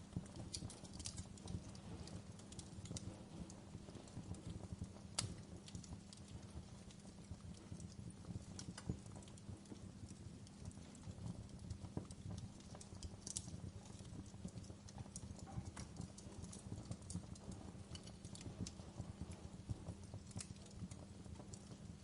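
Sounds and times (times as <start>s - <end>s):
log fire crackling: 0.0s - 22.0s.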